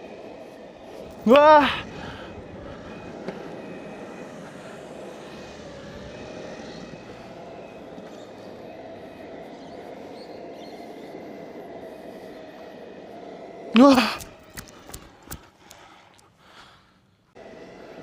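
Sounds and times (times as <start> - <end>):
faint steady whine: 0.0 - 18.0
skateboard rolling on asphalt: 1.8 - 13.6.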